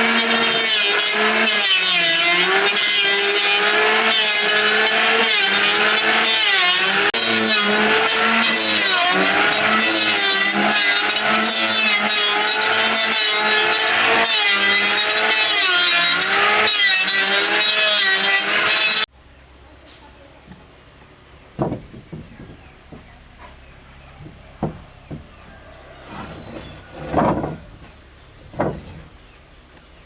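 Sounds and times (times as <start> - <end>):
small engine at high revs: 0.0 - 19.1.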